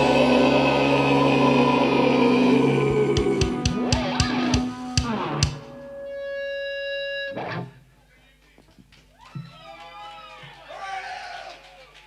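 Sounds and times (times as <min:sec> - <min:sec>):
metal band playing live: 0:00.0 - 0:06.4.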